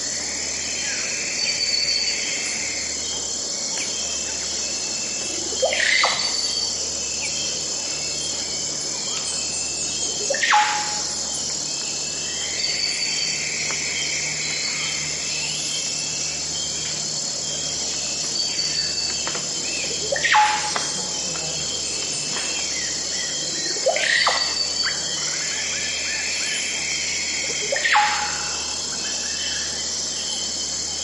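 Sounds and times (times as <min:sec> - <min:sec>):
crickets chirping: 0:00.0 - 0:31.0
sweeping bird calls: 0:00.0 - 0:31.0.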